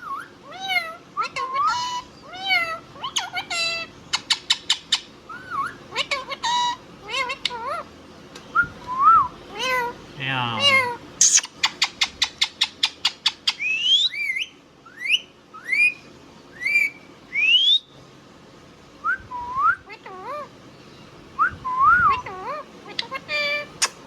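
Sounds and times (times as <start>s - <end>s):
parrot whistling: 10.6s - 12.6s, 13.2s - 16.0s, 16.6s - 17.9s.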